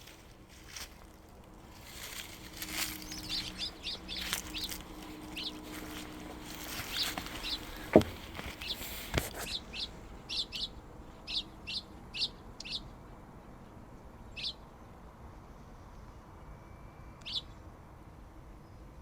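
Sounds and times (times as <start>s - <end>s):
rustling hiss: 0.0s - 10.2s
songbird chirping: 0.0s - 12.9s
sharp knocks: 5.8s - 9.4s.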